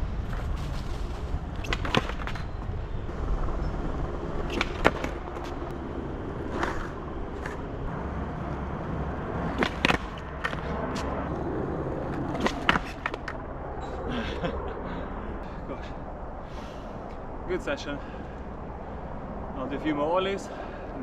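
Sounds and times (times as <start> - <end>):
skateboard wheels rolling on concrete: 0.0 - 14.5
skateboard clacking on ground: 1.6 - 2.5, 9.4 - 10.6, 12.2 - 13.4.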